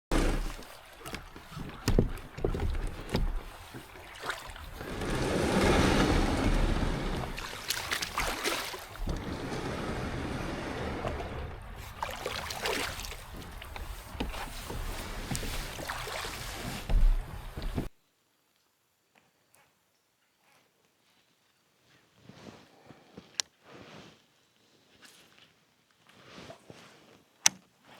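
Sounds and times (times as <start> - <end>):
water splashing around kayak: 0.0 - 17.9
knocks: 16.9 - 17.9.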